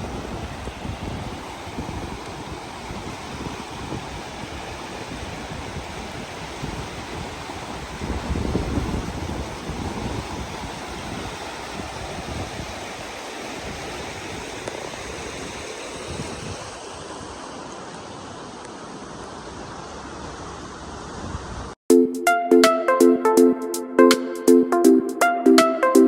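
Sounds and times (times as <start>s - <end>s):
wind buffeting on microphone: 0.0s - 17.5s, 21.0s - 21.8s
rush of flowing water: 0.0s - 21.8s.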